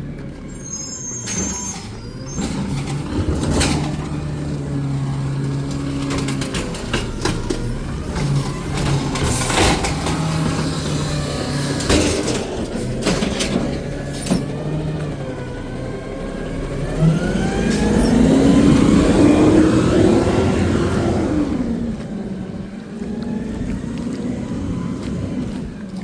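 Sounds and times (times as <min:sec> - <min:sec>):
garbage truck engine idling: 0:00.0 - 0:26.0
metal knocks and clanks: 0:01.6 - 0:14.8.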